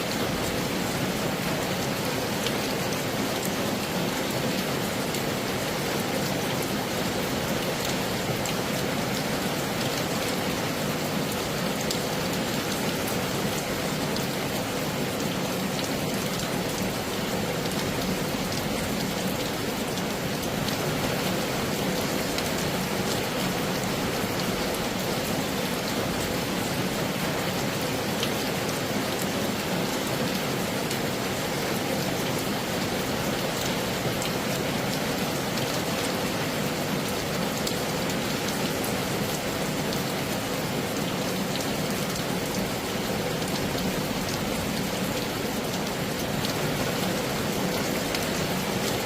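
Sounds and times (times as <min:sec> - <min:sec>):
heavy rain falling: 0:00.0 - 0:49.0.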